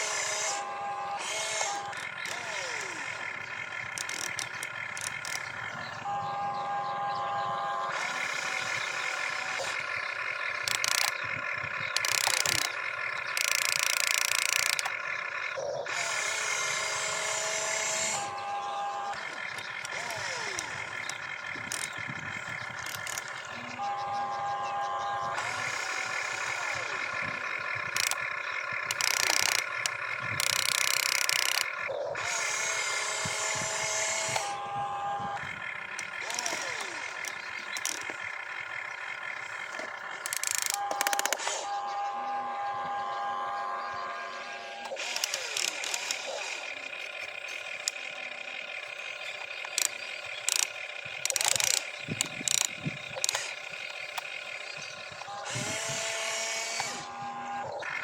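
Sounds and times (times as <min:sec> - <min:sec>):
small electric motors whirring: 0:00.0 - 0:58.0
short clicks and clatters: 0:03.7 - 0:05.6, 0:10.5 - 0:15.0, 0:22.8 - 0:23.4, 0:27.8 - 0:32.5, 0:35.9 - 0:38.4, 0:39.6 - 0:41.7, 0:44.8 - 0:48.2, 0:49.0 - 0:54.4.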